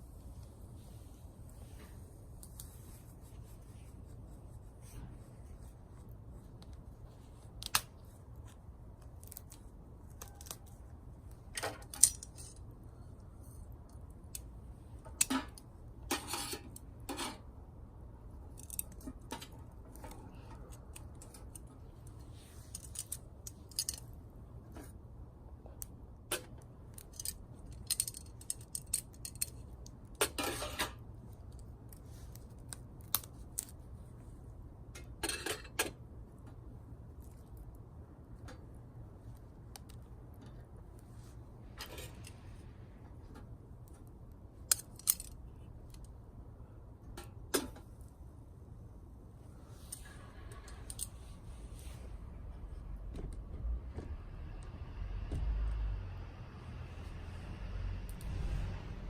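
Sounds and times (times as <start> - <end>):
dry twigs snapping: 7.5 - 8.1, 9.0 - 10.9, 31.9 - 33.8.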